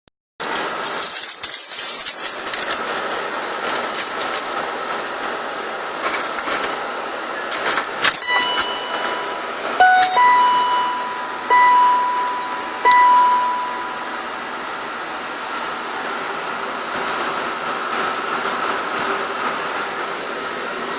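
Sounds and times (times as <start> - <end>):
car warning beeper: 8.2 - 14.5.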